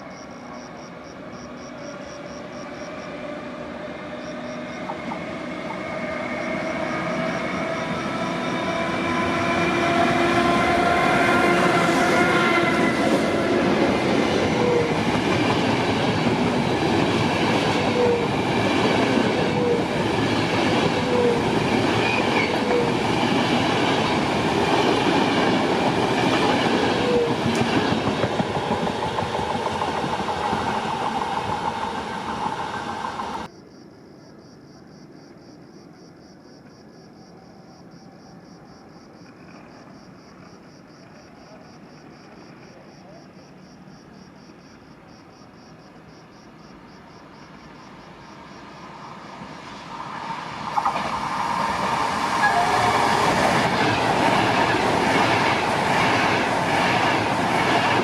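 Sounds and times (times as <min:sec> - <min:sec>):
train wheels rushing on rails: 0:01.6 - 0:33.5, 0:48.0 - 0:58.0.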